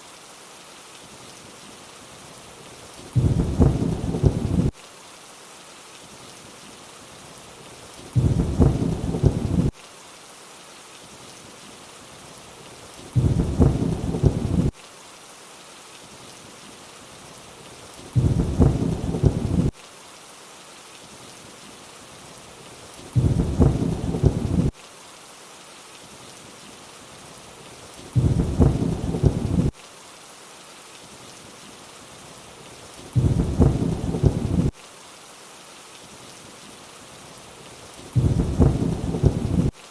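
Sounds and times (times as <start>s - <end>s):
steady rainfall: 0.0s - 39.9s
low thunder rumble: 3.2s - 4.7s, 8.2s - 9.7s, 13.2s - 14.7s, 18.2s - 19.7s, 23.2s - 24.7s, 28.2s - 29.7s, 33.2s - 34.7s, 38.2s - 39.7s.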